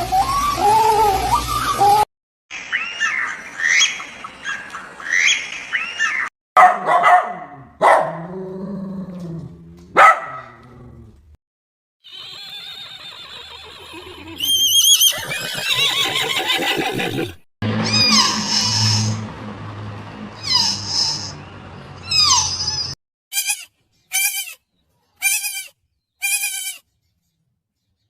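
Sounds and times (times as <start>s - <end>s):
dog yipping and whining: 0.0s - 2.1s, 17.8s - 19.1s, 22.0s - 23.6s
dog barking: 6.6s - 8.3s, 9.9s - 10.6s.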